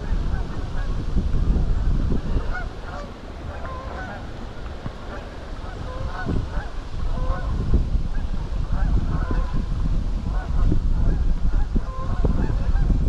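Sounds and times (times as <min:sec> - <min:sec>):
wind buffeting microphone: 0:00.0 - 0:13.0
geese honking: 0:02.3 - 0:04.3, 0:05.0 - 0:07.6, 0:11.6 - 0:12.9.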